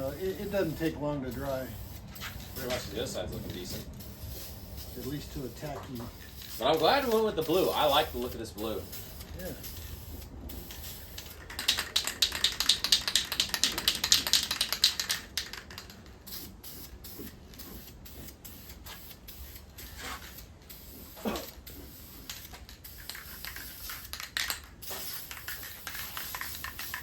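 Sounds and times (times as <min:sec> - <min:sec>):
spray-paint can hissing: 0:00.0 - 0:27.0.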